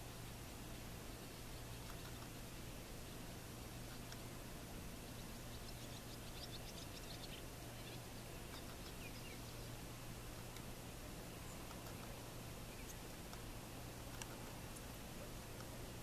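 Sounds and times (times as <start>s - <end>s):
steady hiss and low hum: 0.0s - 16.0s
bird chirps and twitters: 5.1s - 9.8s, 12.7s - 13.2s.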